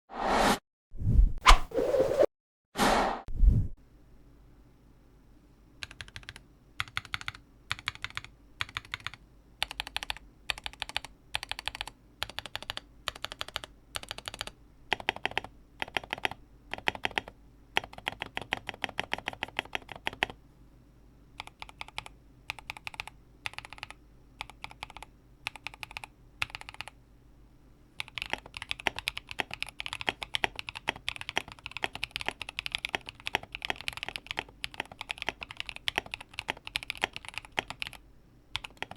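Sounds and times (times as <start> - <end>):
typing on mechanical keyboard: 5.8 - 20.4, 21.4 - 27.0, 28.0 - 38.9.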